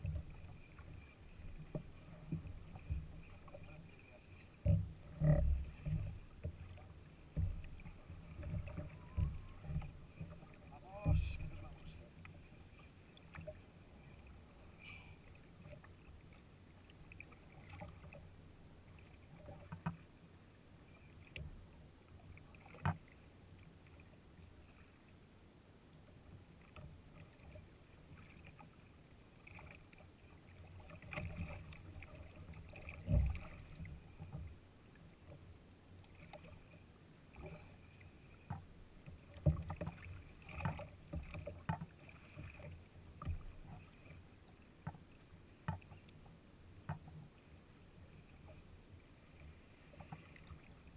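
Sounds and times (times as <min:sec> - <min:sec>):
faint water: 0:00.0 - 0:50.9
knocks and clicks on hull: 0:04.6 - 0:12.4, 0:19.4 - 0:20.0, 0:30.8 - 0:34.6, 0:38.4 - 0:43.9, 0:44.8 - 0:46.2, 0:46.8 - 0:47.3.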